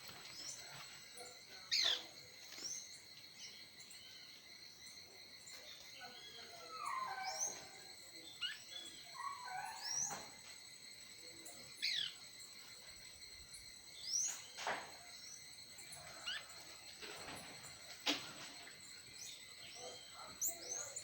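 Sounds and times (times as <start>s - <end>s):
high insect drone: 0.0s - 21.0s
songbirds chirping: 0.0s - 21.0s.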